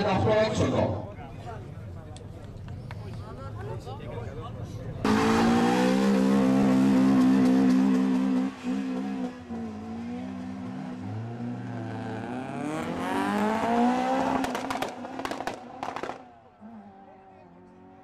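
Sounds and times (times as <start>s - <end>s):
car engine revving: 5.0s - 18.0s
sharp cracks: 14.4s - 16.3s.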